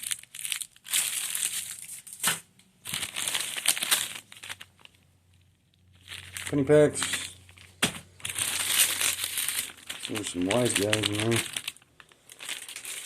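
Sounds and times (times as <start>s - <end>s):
wrapped packs crinkling: 0.0s - 13.0s.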